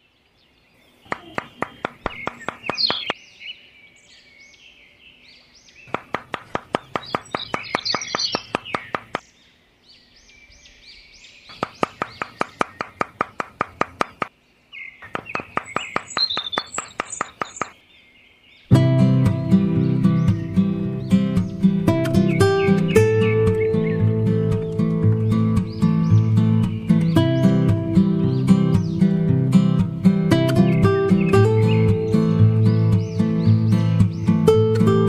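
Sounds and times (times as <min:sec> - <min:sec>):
birds chirping: 0:00.0 - 0:35.0
stick posts tapped into ground: 0:01.1 - 0:03.2, 0:05.9 - 0:09.3, 0:11.5 - 0:14.4, 0:15.0 - 0:17.8.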